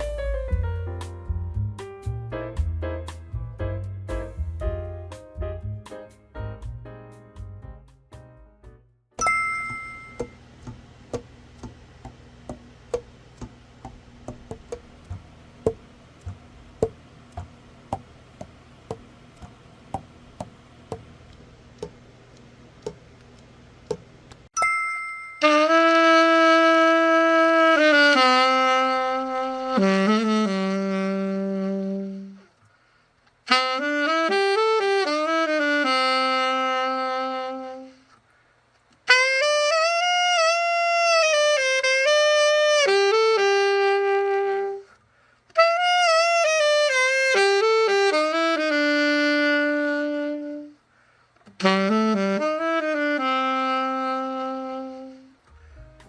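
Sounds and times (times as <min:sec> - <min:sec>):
alto saxophone melody: 0:10.0 - 0:11.8, 0:25.4 - 0:32.6, 0:33.4 - 0:38.2, 0:39.0 - 0:56.0.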